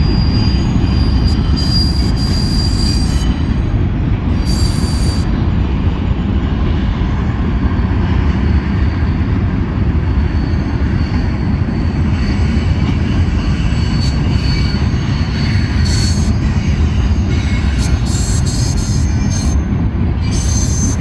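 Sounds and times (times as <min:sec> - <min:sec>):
high-pitched wheel squeal: 0:00.0 - 0:05.3, 0:08.5 - 0:21.0
freight train wheels rumbling: 0:00.0 - 0:21.0.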